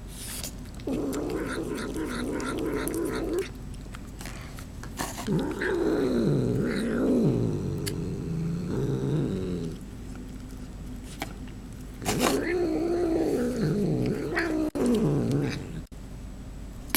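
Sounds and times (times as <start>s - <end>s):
cat growling while eating: 0.2s - 11.2s, 11.9s - 15.9s
sharp eating clicks: 0.5s - 6.0s.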